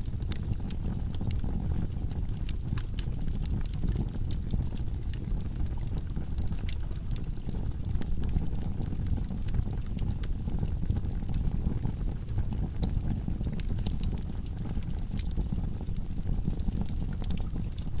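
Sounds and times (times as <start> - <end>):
burning logs crackling and popping: 0.0 - 18.0
fire rumbling: 0.0 - 18.0.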